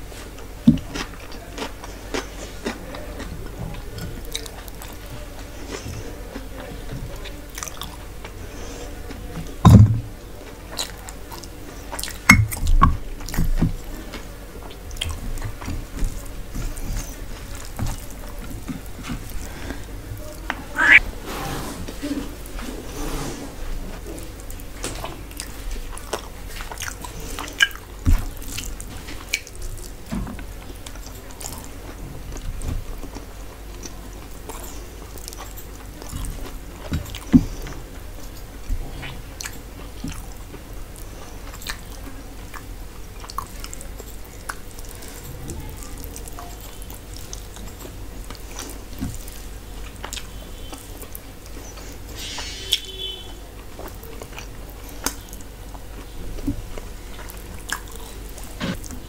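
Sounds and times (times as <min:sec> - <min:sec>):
person chewing: 0:00.1 - 0:21.1, 0:24.0 - 0:59.0
mouth clicks and smacks: 0:20.5 - 0:21.0.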